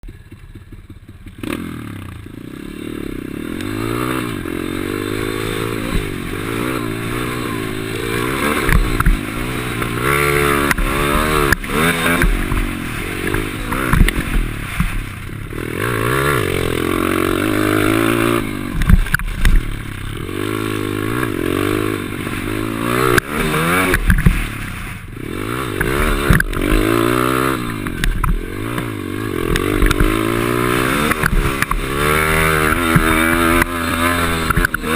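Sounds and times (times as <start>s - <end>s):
motorbike engine revving: 0.0s - 34.9s
knocks and clatter from bike: 5.2s - 34.9s.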